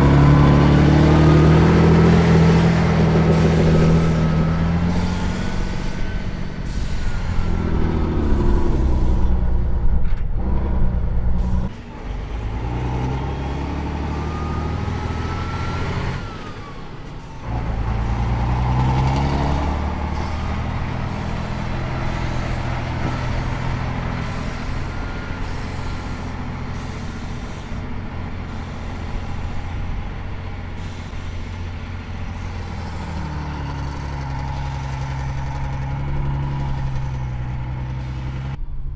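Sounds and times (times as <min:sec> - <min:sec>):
truck engine revving: 0:00.0 - 0:38.6.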